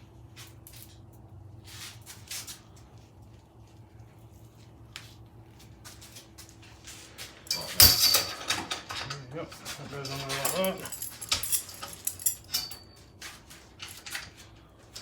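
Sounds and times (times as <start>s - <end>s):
low steady hum: 0.0s - 15.0s
metal parts clicking and rustling: 7.5s - 15.0s.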